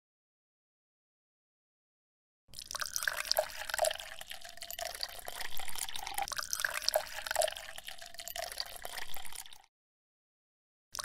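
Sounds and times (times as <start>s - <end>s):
water dripping: 2.6s - 9.7s
water pouring from a bucket: 2.6s - 9.7s.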